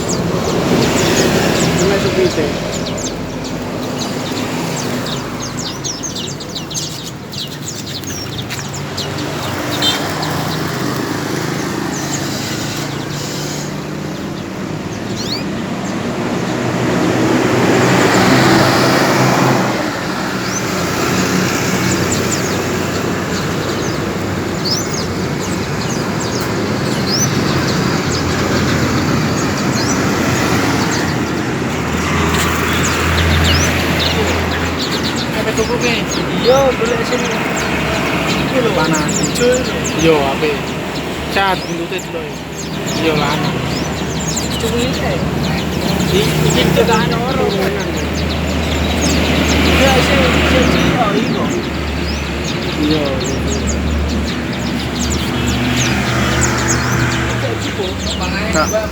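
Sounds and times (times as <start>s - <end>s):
canaries chirping: 0.0s - 58.9s
traffic noise: 0.0s - 58.9s.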